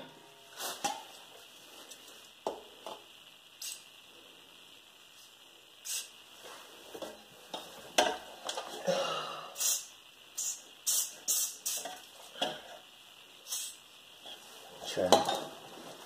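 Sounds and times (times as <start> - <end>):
aerosol can spraying: 3.6 - 3.9, 5.2 - 6.2, 9.6 - 12.1, 13.4 - 13.8.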